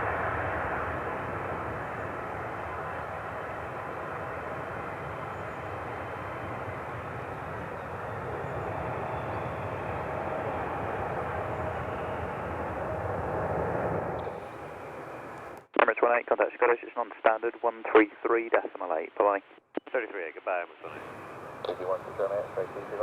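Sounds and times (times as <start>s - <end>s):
jet engines at takeoff power: 0.0s - 15.7s, 20.9s - 23.0s
faint held hum: 20.8s - 23.0s.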